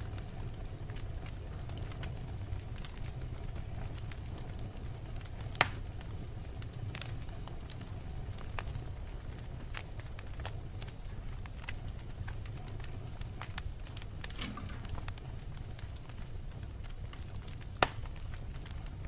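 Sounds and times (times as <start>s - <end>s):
fire crackles: 0.0s - 19.0s
low rumble of flames: 0.0s - 19.0s
loud pop of logs: 14.3s - 15.1s.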